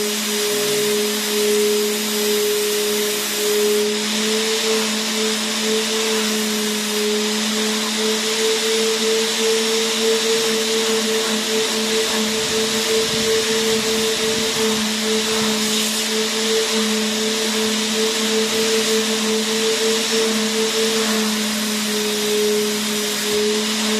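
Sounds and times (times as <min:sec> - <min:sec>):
vacuum cleaner motor running: 0:00.0 - 0:23.9.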